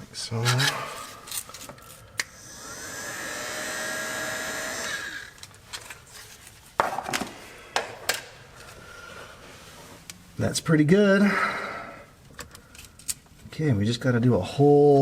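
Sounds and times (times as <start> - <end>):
heat gun fan whine: 2.2 - 5.5.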